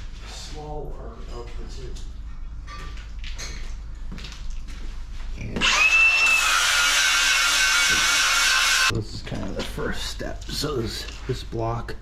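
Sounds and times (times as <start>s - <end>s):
power tool whirring: 5.6s - 8.9s.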